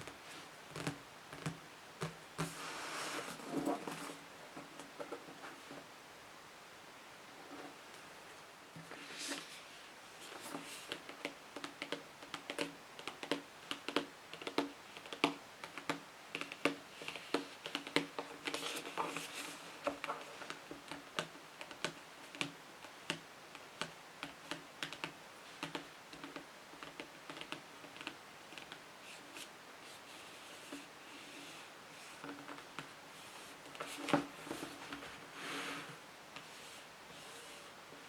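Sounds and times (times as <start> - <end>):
fingernails tapping on a book: 0.0 - 2.6, 10.5 - 28.8.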